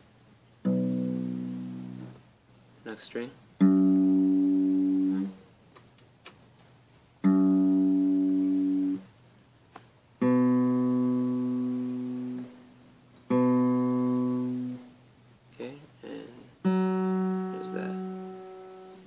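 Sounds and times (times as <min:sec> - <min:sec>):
guitar notes plucked: 0:00.6 - 0:02.2, 0:03.6 - 0:05.4, 0:07.2 - 0:09.1, 0:10.2 - 0:15.0, 0:16.3 - 0:19.0.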